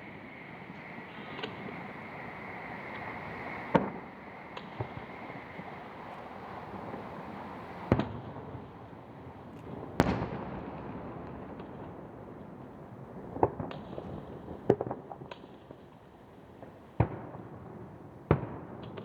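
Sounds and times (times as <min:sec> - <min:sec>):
small fireworks pops: 0:00.6 - 0:19.0
fireworks bangs: 0:09.7 - 0:12.0.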